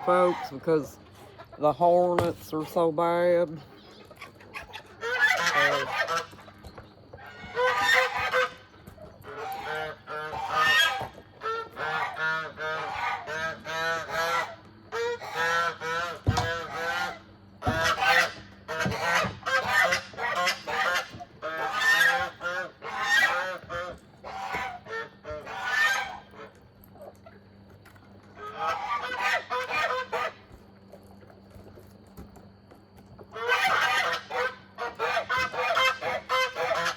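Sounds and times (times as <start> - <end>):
goose honking: 0.0 - 1.0, 4.5 - 6.6, 7.2 - 26.6, 28.4 - 30.5, 33.3 - 36.9.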